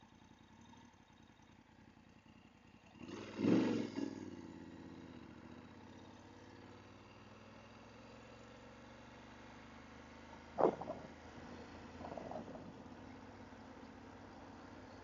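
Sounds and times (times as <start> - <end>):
motorcycle engine revving: 2.8 - 8.9, 10.2 - 13.9.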